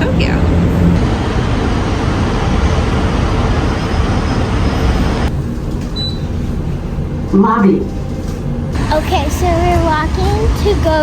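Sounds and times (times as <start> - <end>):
loud outdoor roar: 0.0 - 5.4, 8.6 - 11.0.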